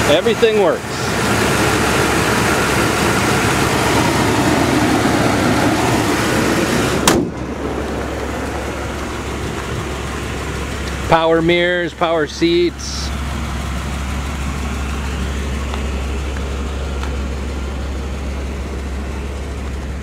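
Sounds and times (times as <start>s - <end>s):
car engine idling: 0.0s - 20.0s
car hood slamming shut: 7.0s - 7.5s.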